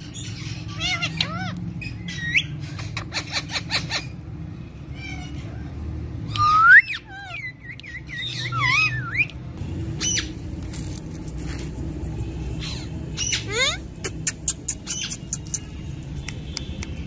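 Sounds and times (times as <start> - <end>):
parrots whistling and squawking: 0.0 - 5.7, 6.3 - 9.4, 10.0 - 10.4, 12.6 - 15.8.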